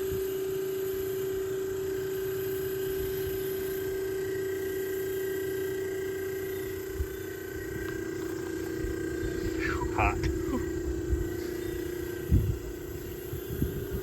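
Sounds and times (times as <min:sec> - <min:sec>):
air conditioner humming: 0:06.8 - 0:13.9.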